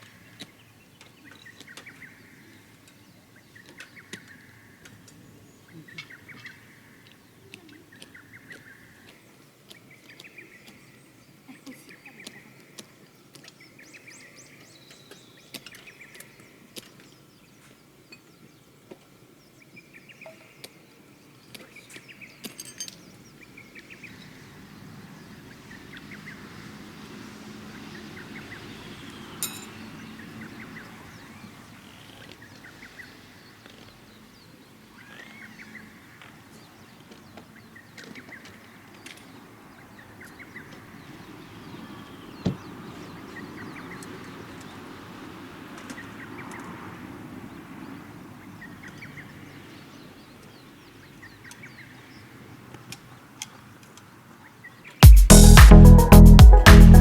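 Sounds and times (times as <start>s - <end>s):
small birds chirping: 0.0s - 26.8s
sharp clink: 22.5s - 23.0s, 29.4s - 29.8s.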